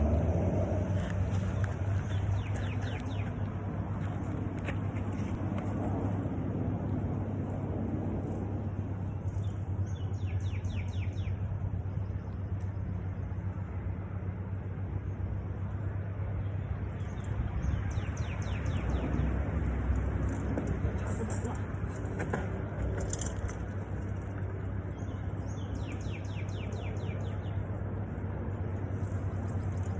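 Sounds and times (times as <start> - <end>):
bird chirping: 24.9 - 27.6.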